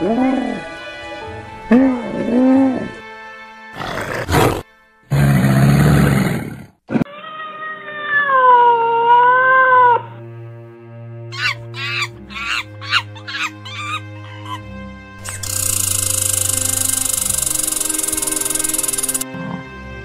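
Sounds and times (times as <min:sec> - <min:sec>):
background music: 0:00.0 - 0:05.6, 0:07.4 - 0:20.0
cat meow: 0:07.1 - 0:10.0.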